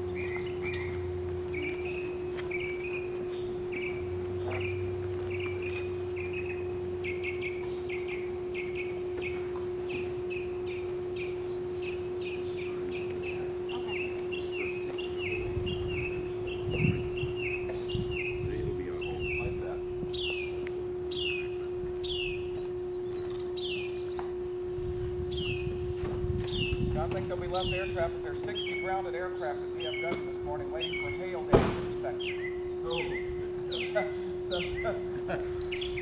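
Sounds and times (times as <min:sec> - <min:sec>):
bird singing whistled notes: 0:00.0 - 0:24.6, 0:25.2 - 0:35.0, 0:35.6 - 0:36.0
steady low hum: 0:00.0 - 0:36.0
low thump: 0:31.5 - 0:32.1.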